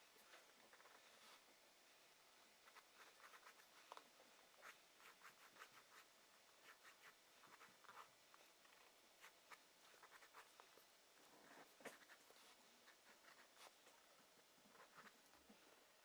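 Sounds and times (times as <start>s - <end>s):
scratching strokes on paper: 2.6s - 4.0s, 4.6s - 8.6s, 9.2s - 14.0s.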